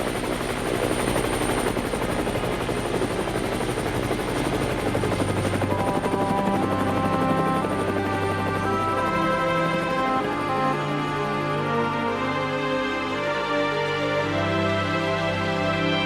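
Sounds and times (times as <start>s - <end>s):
helicopter rotor pulsing: 0.0s - 16.0s
background music: 5.2s - 16.0s.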